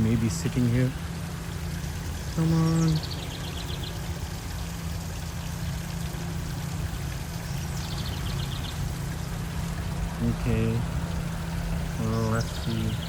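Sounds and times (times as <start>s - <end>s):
bird trilling: 2.3s - 4.1s, 11.9s - 13.0s.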